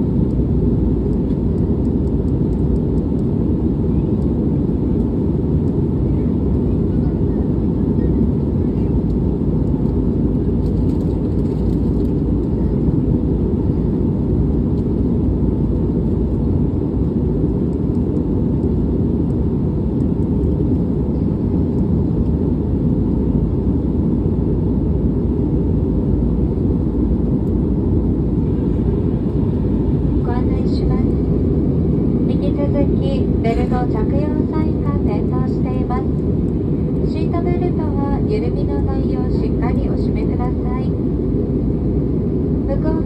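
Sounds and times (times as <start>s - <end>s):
airliner cabin noise: 0.0s - 43.0s.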